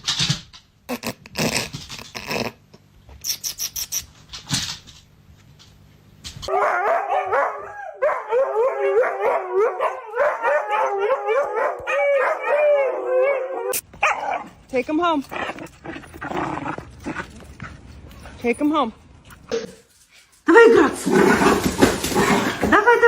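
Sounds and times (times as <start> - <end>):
dog howling and yipping: 6.5 - 14.5.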